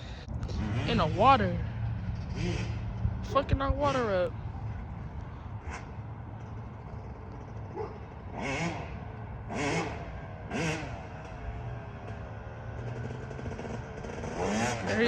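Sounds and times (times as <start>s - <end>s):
dirt bike engine revving: 0.0s - 4.3s, 7.4s - 15.0s.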